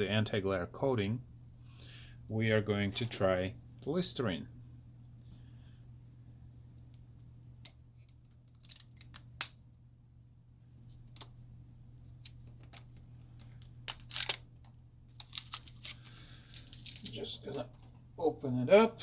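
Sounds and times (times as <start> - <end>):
steady low hum: 0.0 - 19.0
hands handling small objects: 6.6 - 9.6, 10.8 - 18.1.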